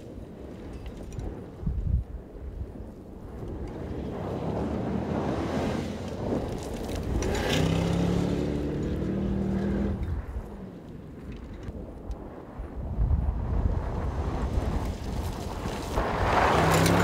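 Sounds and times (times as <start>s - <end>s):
rushing wind: 0.0s - 17.0s
engine driving hard: 3.9s - 10.4s, 16.0s - 17.0s
tyre noise: 14.1s - 17.0s.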